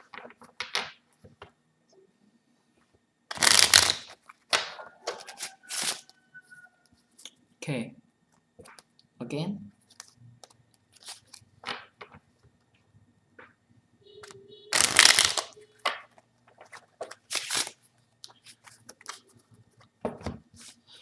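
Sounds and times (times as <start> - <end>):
playing cards riffle shuffled: 3.3 - 6.1, 9.8 - 11.5, 14.7 - 15.6, 16.6 - 19.6, 20.5 - 21.0.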